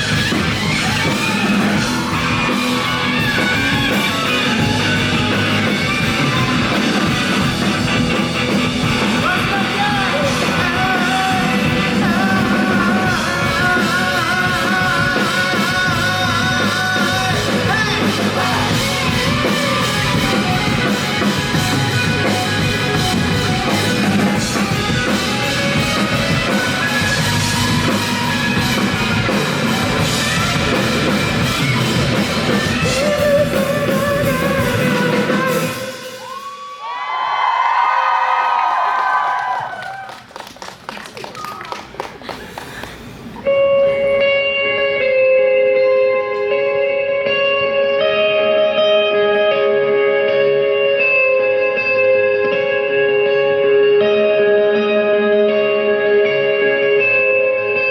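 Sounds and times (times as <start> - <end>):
drum kit: 0.0 - 36.6
live rock band playing: 0.0 - 36.8, 43.1 - 57.9.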